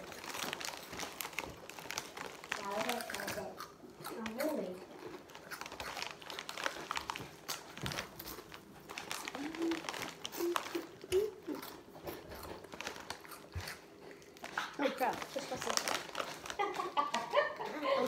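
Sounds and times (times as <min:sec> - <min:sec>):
chip bag crinkling: 0:00.0 - 0:17.9.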